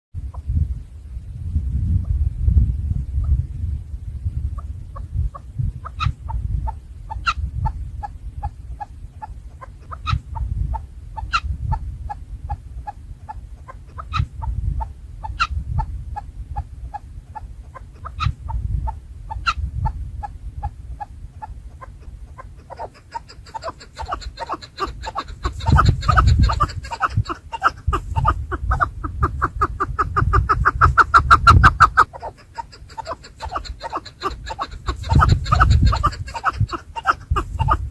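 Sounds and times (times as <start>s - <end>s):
partridges clucking: 22.6s - 37.9s.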